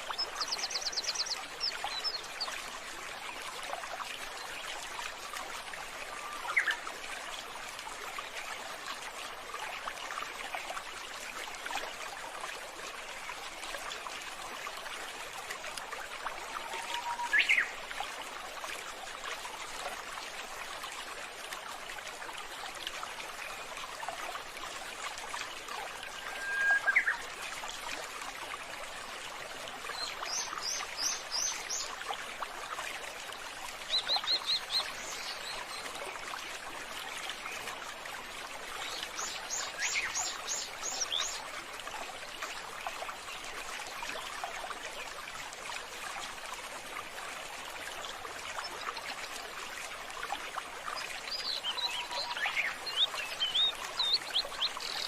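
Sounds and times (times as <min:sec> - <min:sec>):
water trickling: 0:00.0 - 0:55.0.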